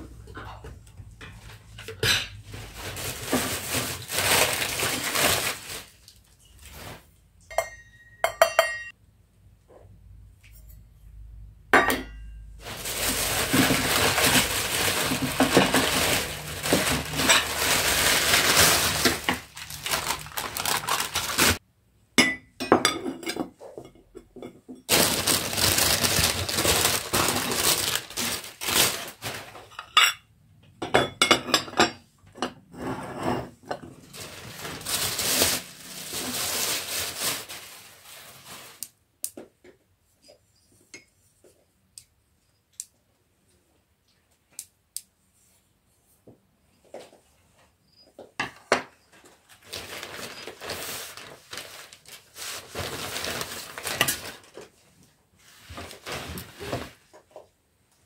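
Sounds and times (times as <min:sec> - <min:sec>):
dishes and cutlery clinking: 0:07.4 - 0:09.0.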